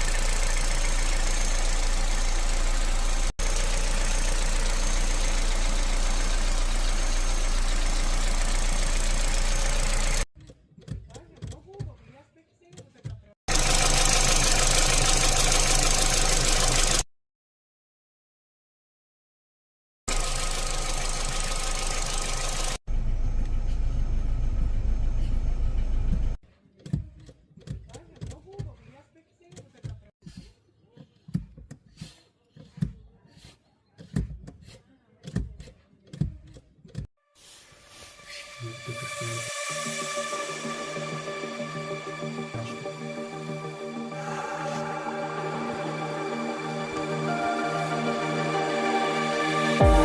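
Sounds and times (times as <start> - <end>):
car engine idling roughly: 0.0 - 10.2, 13.5 - 17.0, 20.1 - 22.8.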